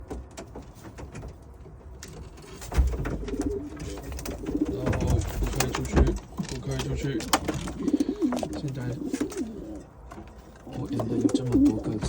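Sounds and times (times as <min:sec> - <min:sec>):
pigeons cooing: 0:02.4 - 0:12.0.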